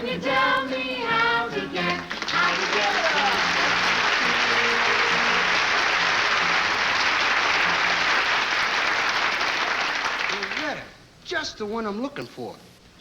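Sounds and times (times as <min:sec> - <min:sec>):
audience applauding: 0:01.8 - 0:10.9.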